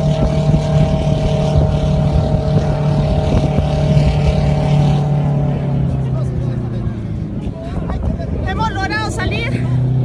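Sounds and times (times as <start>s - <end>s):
jet engine drone: 0.0s - 9.4s.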